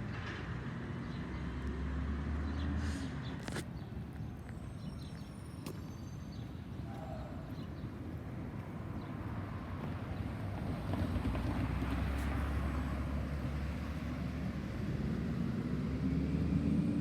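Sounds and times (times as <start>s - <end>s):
passing vehicle rumble: 0.0s - 3.6s, 8.2s - 17.0s
traffic noise: 0.0s - 17.0s.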